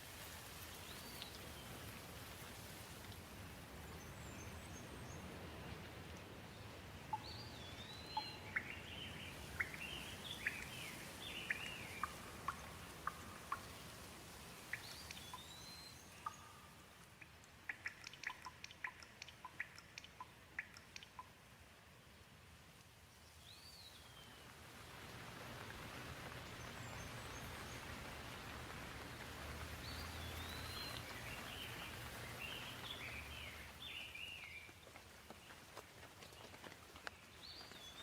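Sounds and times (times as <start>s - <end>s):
gentle rain falling: 0.0s - 38.0s
water drops dripping: 7.0s - 21.6s, 29.1s - 34.7s.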